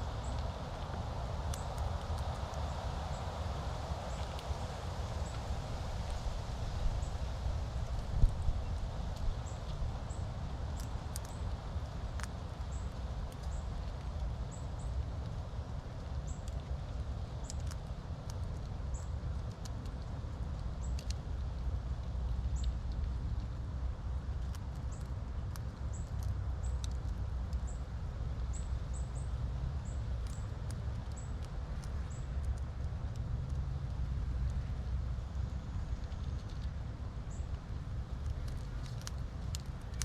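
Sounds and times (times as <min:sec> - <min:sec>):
squirrel chewing clicks: 0:01.4 - 0:02.8, 0:08.6 - 0:23.6, 0:24.2 - 0:40.0.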